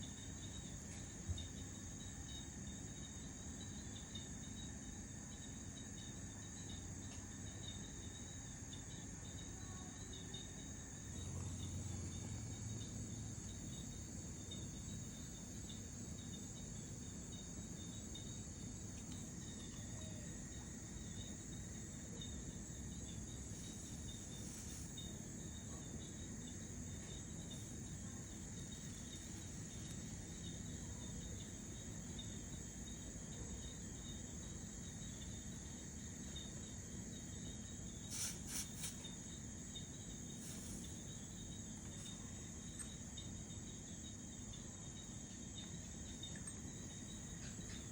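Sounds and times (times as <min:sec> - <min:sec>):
crickets trilling: 0:00.0 - 0:47.9.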